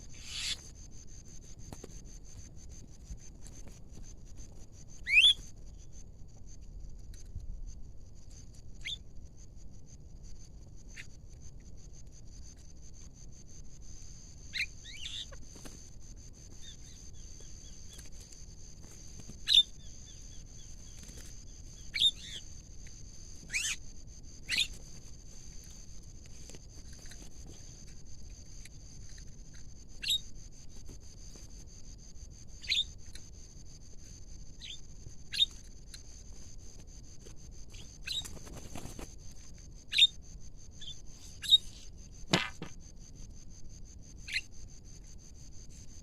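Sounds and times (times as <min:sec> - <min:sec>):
sharp upward-sweeping bird calls: 0:00.2 - 0:00.6, 0:05.1 - 0:05.4.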